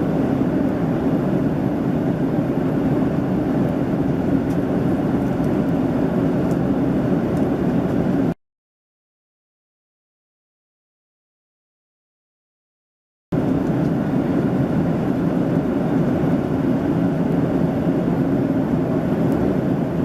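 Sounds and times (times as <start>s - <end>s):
airplane cabin engine hum: 0.0s - 8.4s, 13.3s - 20.0s.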